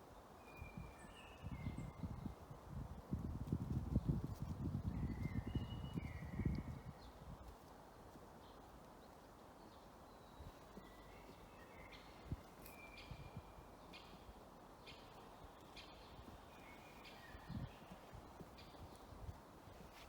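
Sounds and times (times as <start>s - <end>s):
faint birdsong chirps and whistles: 0.0s - 2.5s, 4.7s - 7.2s, 9.6s - 20.0s.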